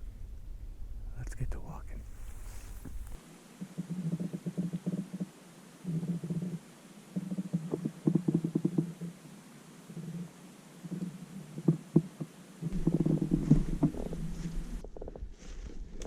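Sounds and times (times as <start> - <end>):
footsteps through leaf litter: 2.1 - 3.2.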